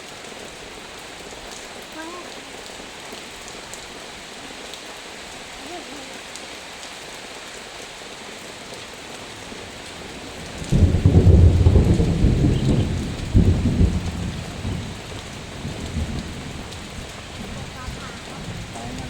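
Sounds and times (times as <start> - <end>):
heavy rain falling: 0.0 - 19.0
thunder rumbling: 9.6 - 19.0.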